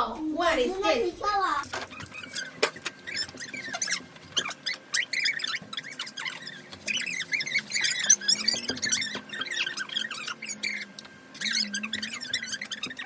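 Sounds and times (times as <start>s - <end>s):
wet wipes squeaking on tabletops: 1.4s - 13.0s.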